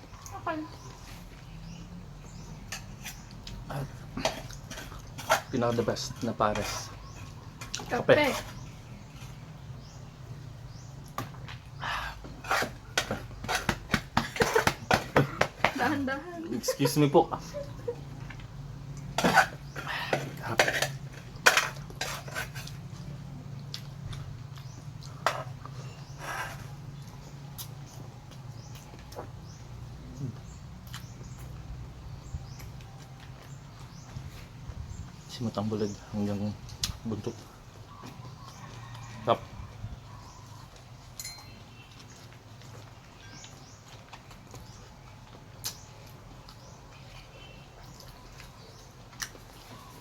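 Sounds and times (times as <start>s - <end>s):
chewing with clicks: 27.0s - 34.1s, 40.1s - 50.0s
tableware clinking: 41.2s - 41.6s.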